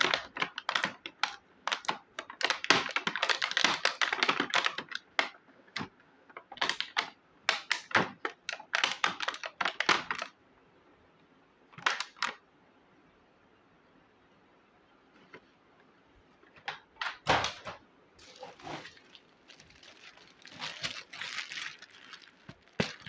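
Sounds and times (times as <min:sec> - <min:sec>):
plastic toy pieces clattering: 0:18.2 - 0:23.0.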